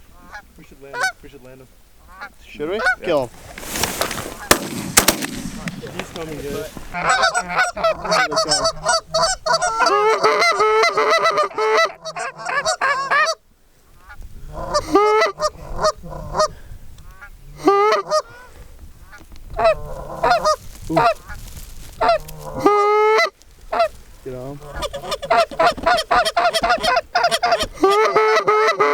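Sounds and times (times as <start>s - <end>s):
goose honking: 2.1s - 13.4s, 17.1s - 21.4s, 22.0s - 24.0s, 24.6s - 28.9s.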